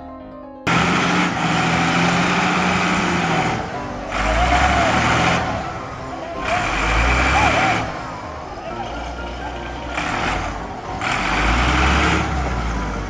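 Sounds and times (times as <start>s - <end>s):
piano music: 0.0s - 13.0s
truck engine running: 0.7s - 13.0s.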